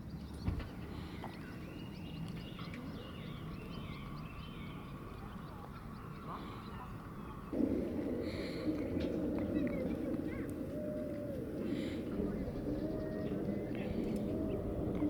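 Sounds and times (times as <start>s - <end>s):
steady low rumble: 7.4s - 15.0s.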